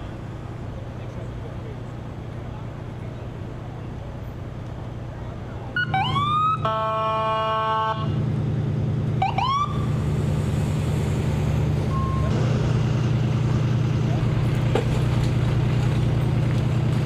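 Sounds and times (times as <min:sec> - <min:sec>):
emergency vehicle horn: 0:05.8 - 0:08.2, 0:09.2 - 0:09.9
engine idling: 0:08.0 - 0:17.0.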